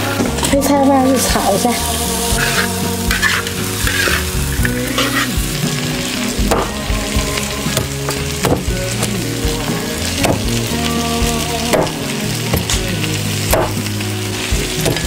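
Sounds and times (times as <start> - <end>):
food sizzling in a wok: 0.0 - 15.0
spatula stirring in a wok: 2.3 - 6.8.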